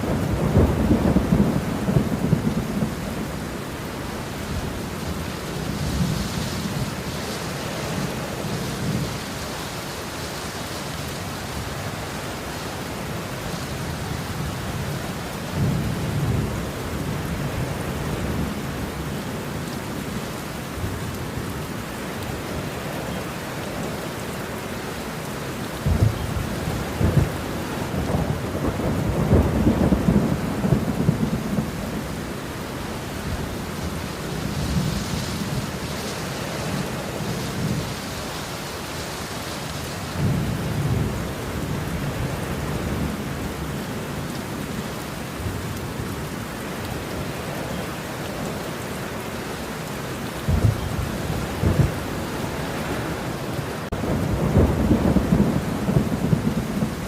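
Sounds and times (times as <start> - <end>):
rolling thunder: 0.0 - 3.6, 25.8 - 32.4, 50.4 - 53.2, 53.8 - 57.0
heavy rain: 0.0 - 57.0.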